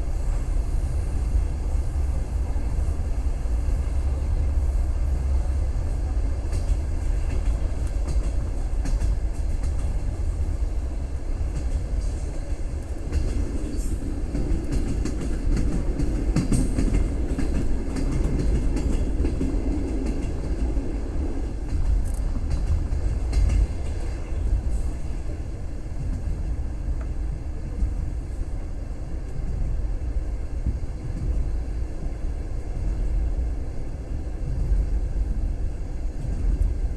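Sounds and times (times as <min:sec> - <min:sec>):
train wheels rumbling on track: 0:00.0 - 0:36.9
wheels clacking over rails: 0:11.5 - 0:24.2.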